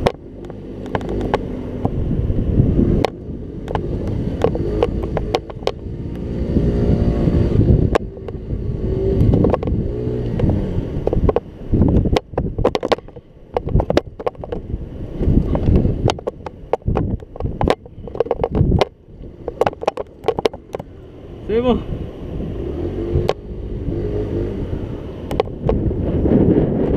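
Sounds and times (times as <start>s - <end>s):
sharp knocks and clatters: 0.0s - 2.0s, 3.0s - 5.8s, 9.2s - 14.7s, 15.6s - 20.9s
scooter engine revving: 0.0s - 26.9s
wind on microphone: 0.0s - 26.9s.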